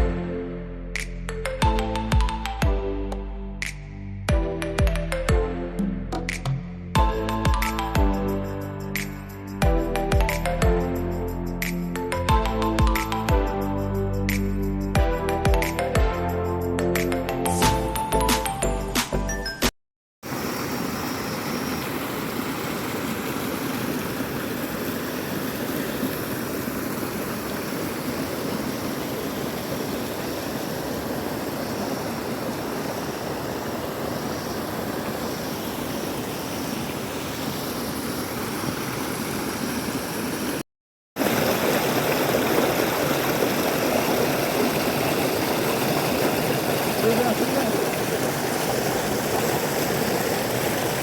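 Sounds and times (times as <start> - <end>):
waterfall: 7.0 - 16.1, 20.2 - 40.6, 41.2 - 51.0.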